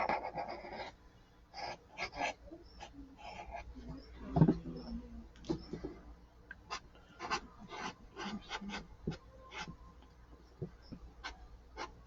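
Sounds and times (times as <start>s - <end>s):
marker scratching on paper: 0.0s - 1.0s, 1.6s - 4.0s, 6.7s - 9.8s, 10.6s - 12.0s.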